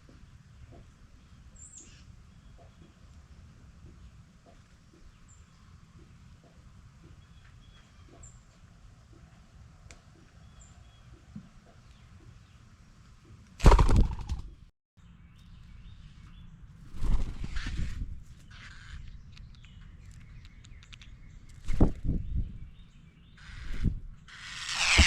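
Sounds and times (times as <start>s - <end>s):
small birds chirping: 0.0s - 13.4s, 15.0s - 25.0s
bursts of rushing noise: 24.5s - 25.0s.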